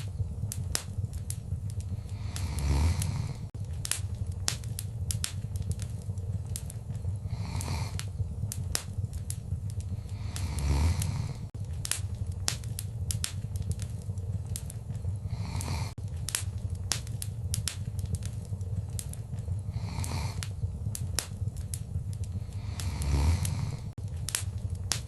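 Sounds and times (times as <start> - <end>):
rush of flames: 0.0 - 25.0
wood fire crackling: 0.0 - 25.0.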